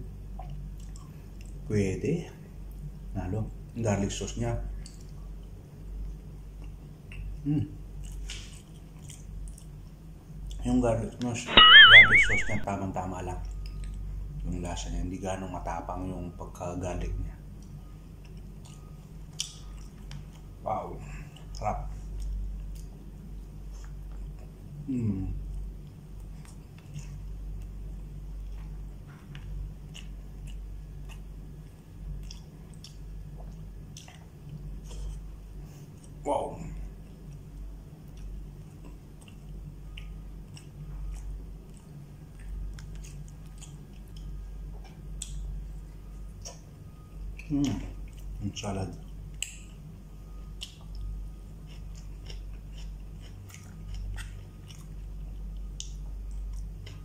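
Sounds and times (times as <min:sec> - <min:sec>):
steady low hum: 0:00.0 - 0:57.0
man chewing food: 0:00.2 - 0:01.7, 0:04.8 - 0:10.6, 0:17.5 - 0:36.2, 0:36.8 - 0:48.4, 0:49.0 - 0:57.0
mouth clicks: 0:11.5 - 0:12.6
low hum: 0:11.5 - 0:12.7.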